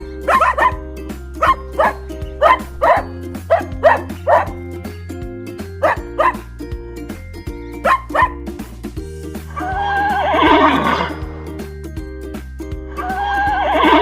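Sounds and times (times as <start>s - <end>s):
music with bass line: 0.0s - 14.0s
dog barking: 0.3s - 0.8s, 1.4s - 4.5s, 5.8s - 6.4s, 7.8s - 8.4s.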